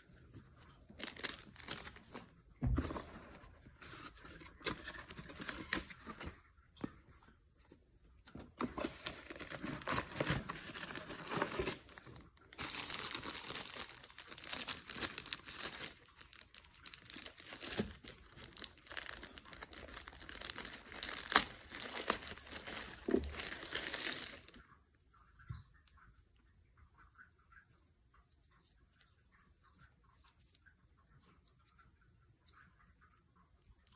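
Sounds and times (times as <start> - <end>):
packaging crumpled and torn: 0.9 - 2.2, 8.6 - 24.6.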